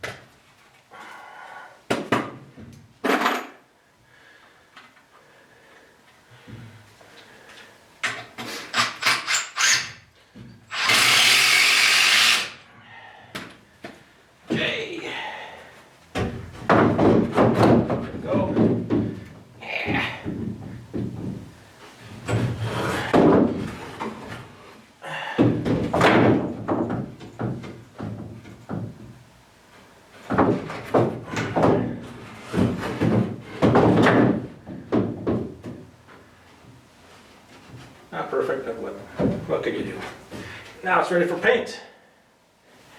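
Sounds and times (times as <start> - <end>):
wooden knocks and thuds: 1.9 - 3.3, 16.1 - 24.4, 25.4 - 29.2, 30.2 - 35.9, 39.2 - 39.5
power tool running: 10.7 - 12.6.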